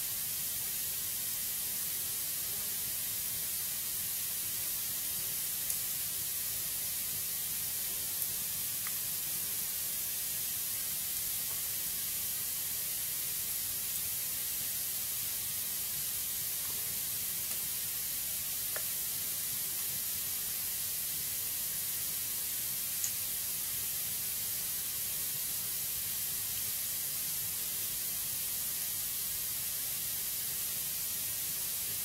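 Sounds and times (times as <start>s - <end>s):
wood fire hissing: 0.0s - 32.0s
fire crackles: 4.3s - 12.2s.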